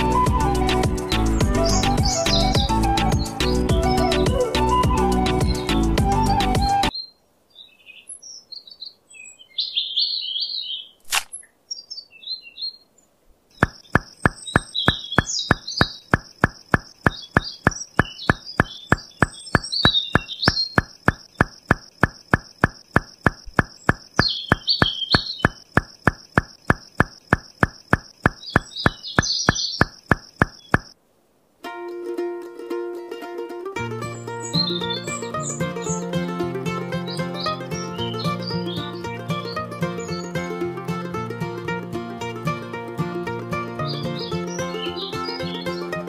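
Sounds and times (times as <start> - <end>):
small birds chirping: 0.7 - 3.7, 5.2 - 31.0, 34.0 - 36.2, 36.8 - 40.8, 43.8 - 46.0
sharp click: 11.0 - 11.4, 13.6 - 31.0
fast even ticking: 13.6 - 31.0.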